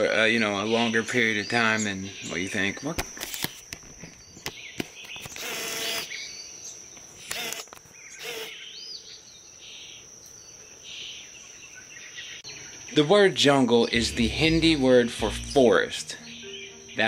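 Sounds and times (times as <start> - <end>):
faint bird chirps: 0.0 - 13.2
high-pitched insect drone: 5.4 - 8.7, 12.3 - 17.0.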